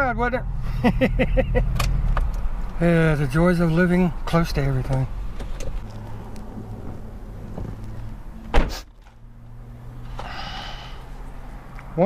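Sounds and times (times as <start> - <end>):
car engine humming: 0.0 - 12.0
car door shutting: 6.7 - 9.2.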